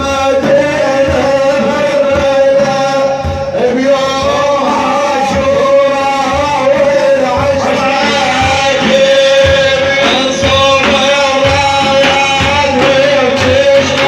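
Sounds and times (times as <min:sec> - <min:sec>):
frame drum beats: 0:00.0 - 0:14.0
men chanting: 0:00.0 - 0:14.0.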